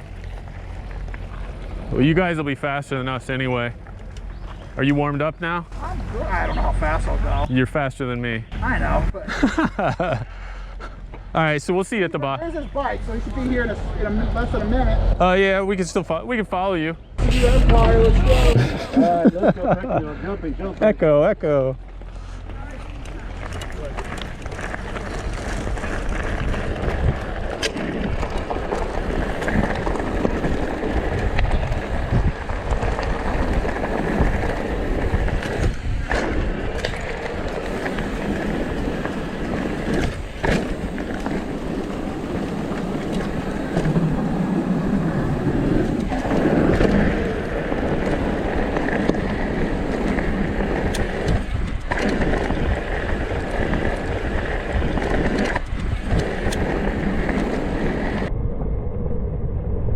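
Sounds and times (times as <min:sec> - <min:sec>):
bike rattling over rocks: 0:00.0 - 0:04.8, 0:21.8 - 0:58.3
wind noise on microphone: 0:23.3 - 0:59.9.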